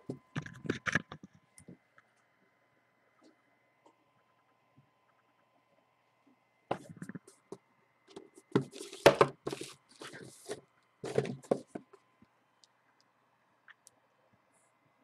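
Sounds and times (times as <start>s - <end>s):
cardboard box knocks and scrapes: 8.5s - 11.8s.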